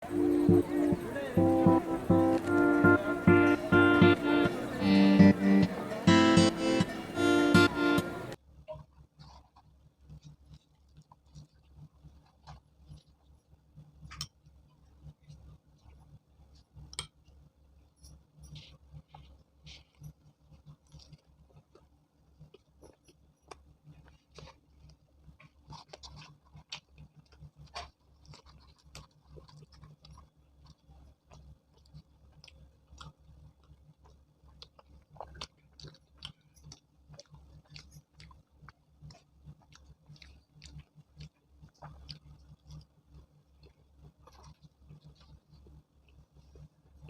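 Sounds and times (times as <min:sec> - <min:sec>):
low steady hum: 0:00.0 - 0:08.9
person chewing food: 0:08.8 - 0:47.0.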